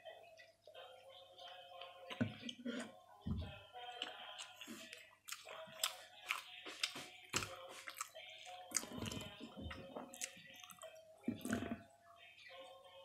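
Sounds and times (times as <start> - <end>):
person chewing crunchy sandwich: 3.9 - 10.8.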